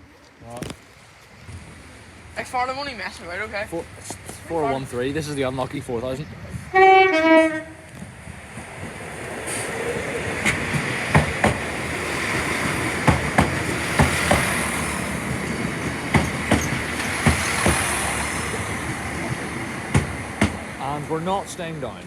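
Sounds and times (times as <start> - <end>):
diesel train passing: 0.4 - 22.0
wheels clicking over rail joints: 7.8 - 22.0.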